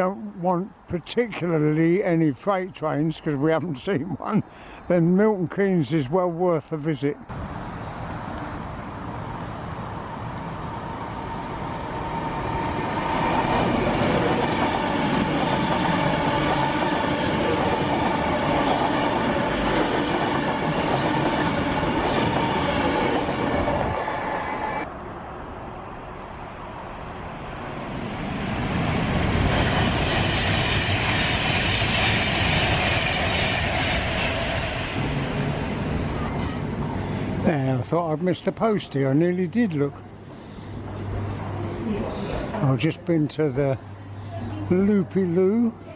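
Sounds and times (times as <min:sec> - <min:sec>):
train passing with whine: 0:07.3 - 0:38.6, 0:39.4 - 0:42.9.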